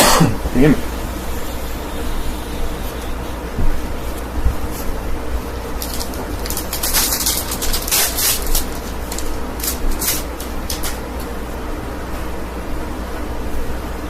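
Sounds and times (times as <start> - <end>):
steady low hum: 0.0 - 14.0
foil wrappers crinkling: 2.7 - 11.4.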